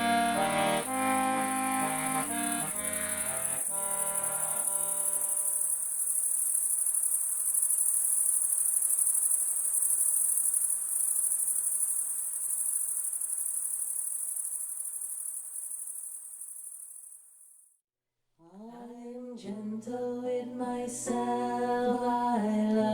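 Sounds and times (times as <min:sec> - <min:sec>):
accordion notes: 0:00.0 - 0:05.7
crickets trilling: 0:00.0 - 0:17.7.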